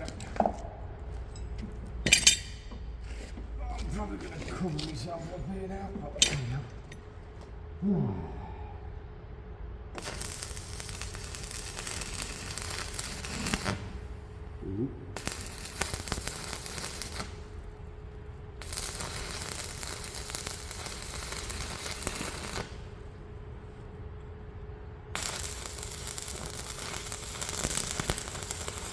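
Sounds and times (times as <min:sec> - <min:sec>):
arc welding crackling: 0:00.0 - 0:02.7, 0:10.0 - 0:23.1, 0:25.1 - 0:28.9
faint steady hum: 0:00.0 - 0:28.9.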